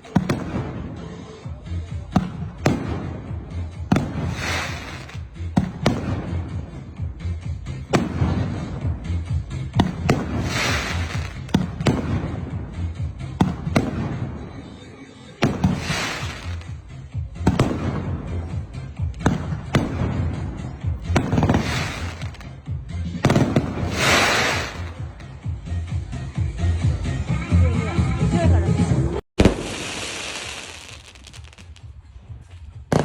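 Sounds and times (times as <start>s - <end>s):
fireworks crackle: 0.0s - 7.2s, 7.9s - 14.6s, 15.4s - 22.6s, 23.2s - 25.3s, 29.4s - 33.0s
fireworks bangs: 0.0s - 25.5s, 29.4s - 32.0s.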